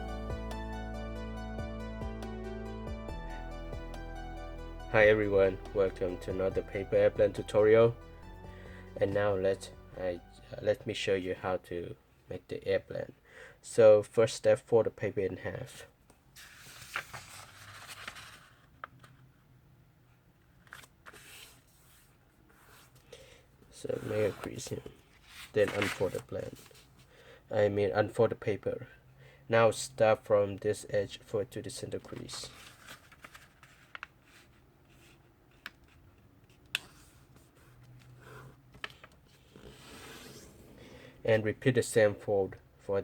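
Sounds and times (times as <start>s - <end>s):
paper rustling and crackling: 16.4s - 19.2s, 24.0s - 27.0s, 32.0s - 36.0s.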